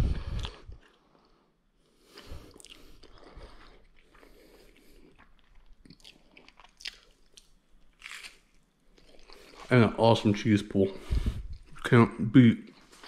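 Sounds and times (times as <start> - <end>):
wet mouth sounds: 0.0 - 1.0
crunching crisp crust: 2.0 - 9.9.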